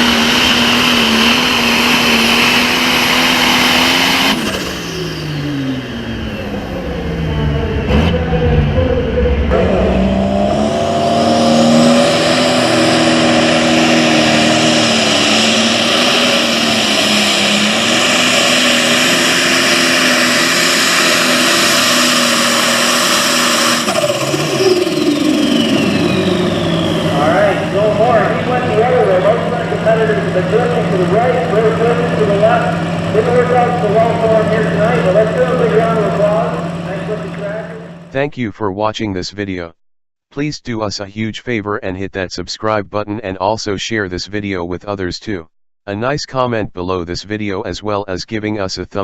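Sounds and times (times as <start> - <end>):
tractor diesel engine under load: 0.0 - 39.0.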